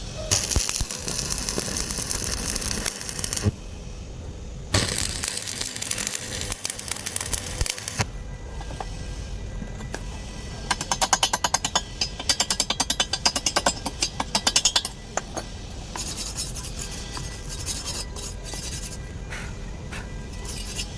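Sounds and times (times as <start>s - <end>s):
scraping strokes on metal: 0.0s - 3.6s, 15.9s - 20.9s.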